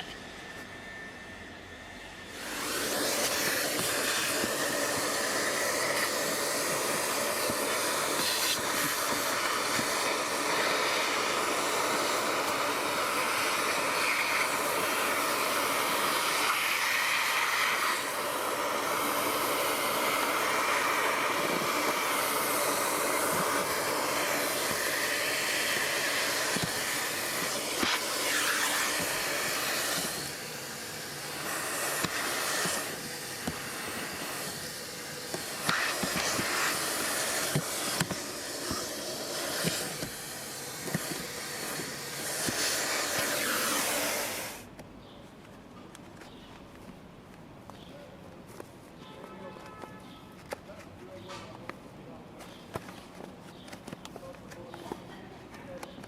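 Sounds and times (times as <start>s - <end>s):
rushing air hiss: 2.3s - 44.6s.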